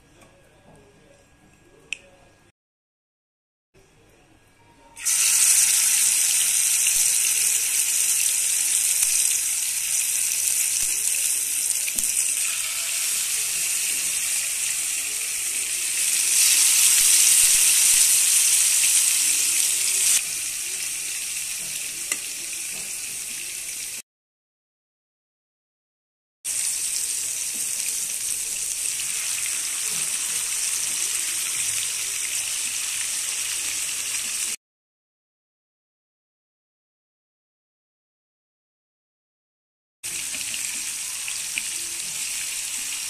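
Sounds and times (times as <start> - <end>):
meat sizzling in hot oil: 5.0 - 24.0, 26.5 - 34.6, 40.1 - 43.0.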